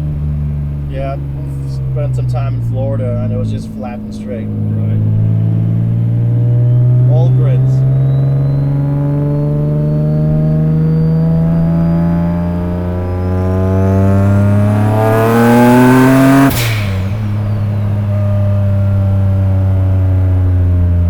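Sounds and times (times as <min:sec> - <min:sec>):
car engine pulling hard: 0:00.0 - 0:21.0
high turbo whine: 0:00.0 - 0:21.0
whoosh of released boost: 0:16.5 - 0:18.7.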